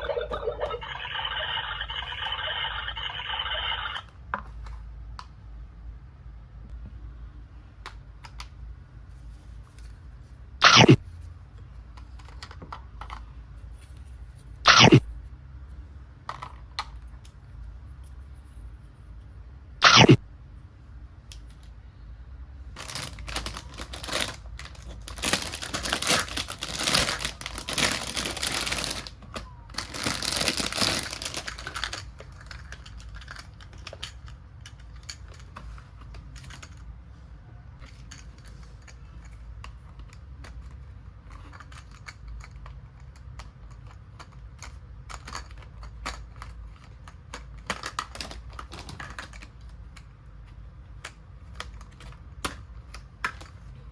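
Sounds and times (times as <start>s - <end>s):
toy pieces rustling and clattering: 11.9s - 14.5s, 22.8s - 37.0s, 37.8s - 53.7s.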